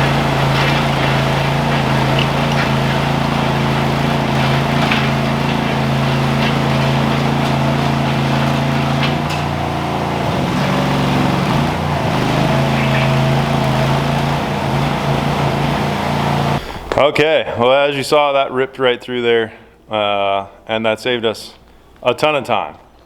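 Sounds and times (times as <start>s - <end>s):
trencher engine under load: 0.0s - 17.0s.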